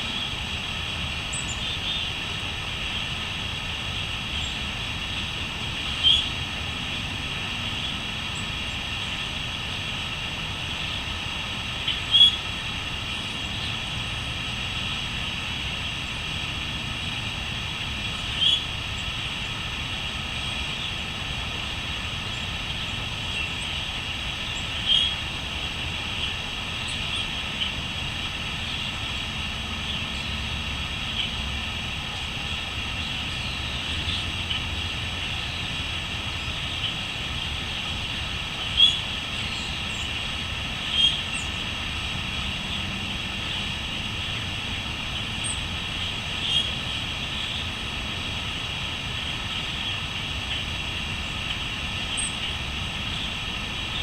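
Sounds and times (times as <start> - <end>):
crickets trilling: 0.0 - 54.0
bird calls: 3.9 - 6.4, 11.8 - 14.0, 18.1 - 19.2, 22.0 - 25.2, 32.0 - 41.7, 45.4 - 47.7, 51.2 - 54.0.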